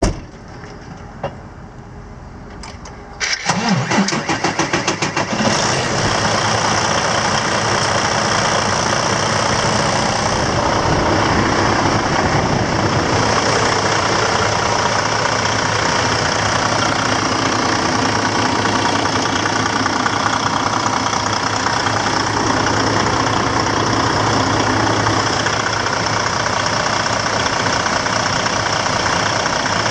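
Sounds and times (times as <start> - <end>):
engine idling: 0.0 - 29.9
engine starter cranking: 2.5 - 10.2.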